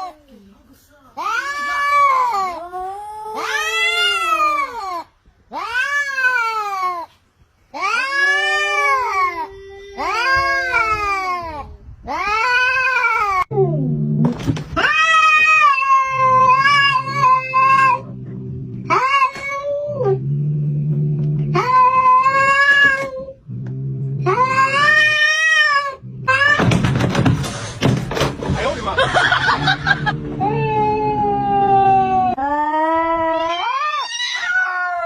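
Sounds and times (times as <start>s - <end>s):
cat growling: 1.2s - 7.1s, 7.8s - 27.0s, 29.3s - 35.0s
cat yowling: 1.2s - 7.1s, 7.8s - 13.5s, 14.8s - 18.0s, 18.9s - 20.2s, 21.5s - 23.4s, 24.2s - 26.8s, 30.4s - 35.0s.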